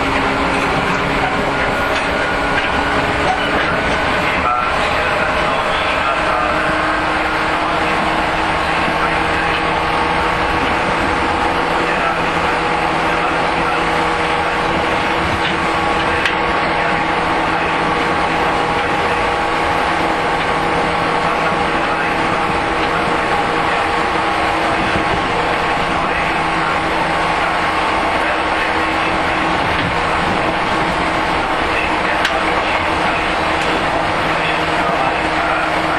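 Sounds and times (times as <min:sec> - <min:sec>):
traction motors humming: 0:00.0 - 0:35.9
wheels running on rails: 0:00.0 - 0:35.9.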